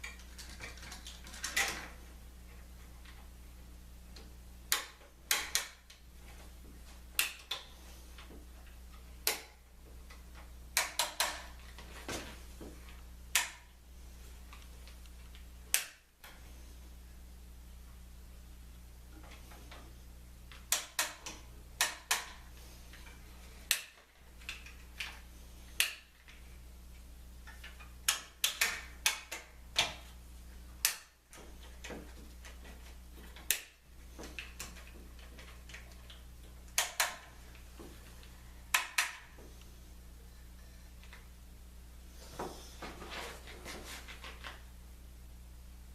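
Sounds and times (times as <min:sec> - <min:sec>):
clamps clicking and knocking: 0:00.0 - 0:02.0, 0:04.2 - 0:06.0, 0:07.2 - 0:12.2
steady low hum: 0:00.0 - 0:45.9.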